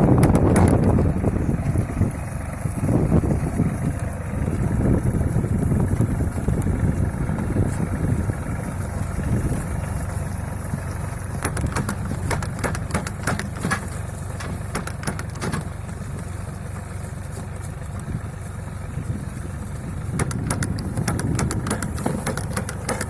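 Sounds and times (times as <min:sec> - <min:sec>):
sharp clicks and knocks: 0:00.0 - 0:01.7, 0:09.5 - 0:16.3, 0:20.0 - 0:23.0
tractor engine running: 0:00.0 - 0:23.0.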